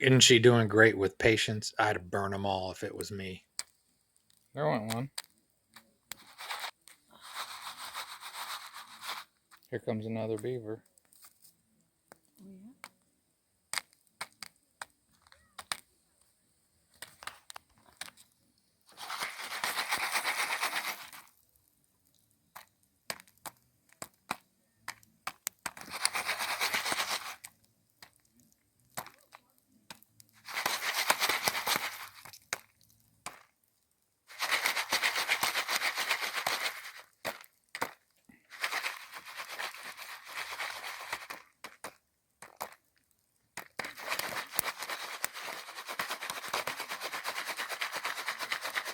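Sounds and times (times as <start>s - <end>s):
popcorn popping: 4.8s - 9.6s, 13.7s - 16.0s, 16.9s - 18.2s, 18.9s - 21.3s, 22.4s - 33.6s, 34.3s - 42.9s, 43.5s - 48.9s
foil pan rattling and sizzling: 5.8s - 9.7s, 16.9s - 21.7s, 22.4s - 42.9s, 43.5s - 48.9s.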